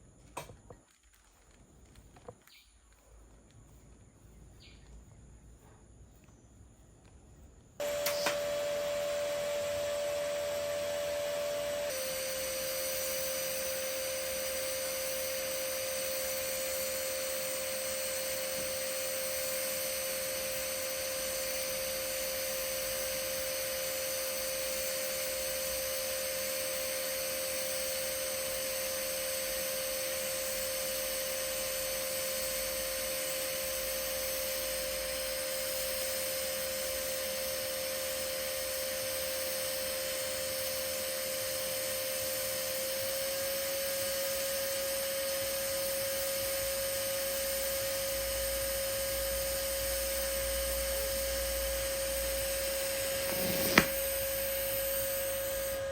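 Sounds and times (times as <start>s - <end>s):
welding arc hissing: 11.2s - 23.8s.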